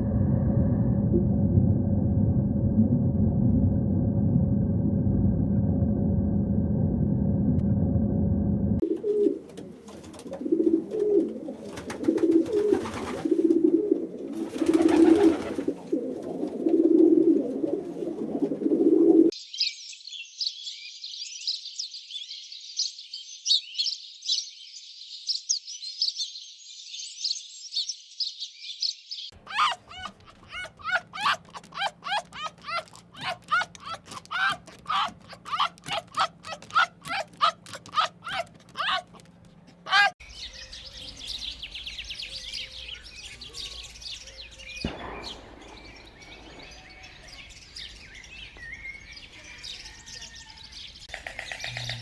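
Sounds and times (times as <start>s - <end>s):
low steady rumble: 0.0s - 8.8s
low repeated bird coos: 8.8s - 19.4s, 29.5s - 48.5s, 51.0s - 52.0s
rapid high bird calls: 29.5s - 39.2s, 39.9s - 52.0s
dense high bird chirping: 40.0s - 52.0s.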